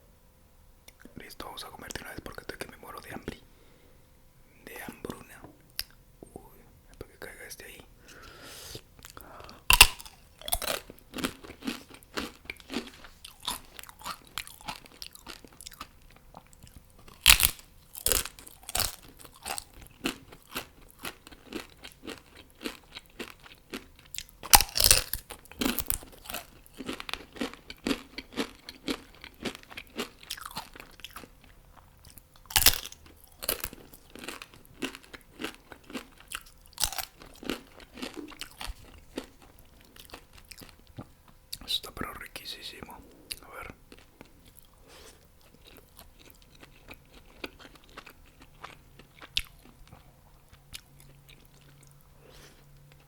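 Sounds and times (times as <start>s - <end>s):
wet chewing: 8.7s - 41.6s, 43.3s - 53.0s
crunchy bites into fried chicken: 9.2s - 31.6s, 32.2s - 41.0s.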